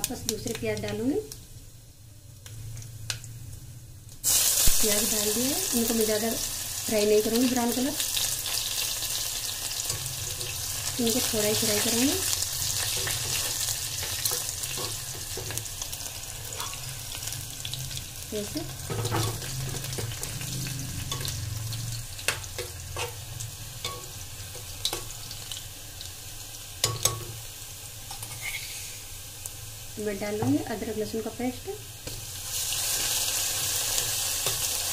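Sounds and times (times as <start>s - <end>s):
onions sizzling in hot oil: 0.0s - 34.9s
metal spoon clinking and scraping: 16.5s - 16.9s.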